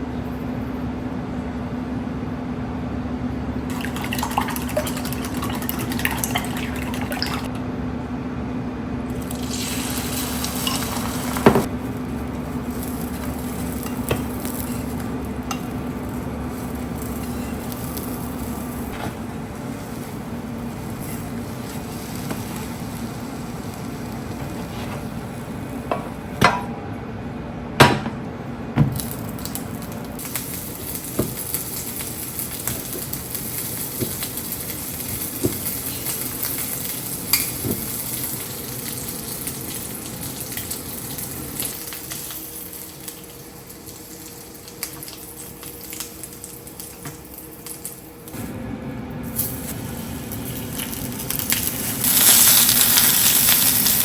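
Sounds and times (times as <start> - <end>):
steady low hum: 0.0 - 54.0
utensils clinking on pans: 10.4 - 11.7, 35.2 - 39.9.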